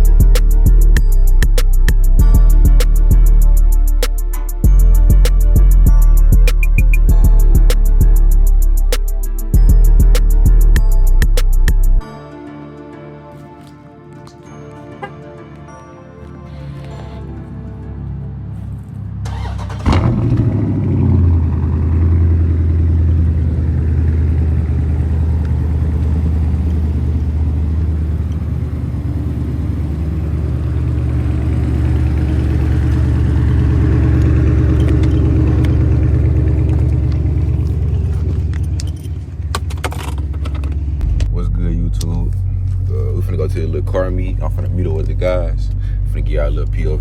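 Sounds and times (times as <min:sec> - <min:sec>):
car engine starting and idling: 0:16.2 - 0:47.0.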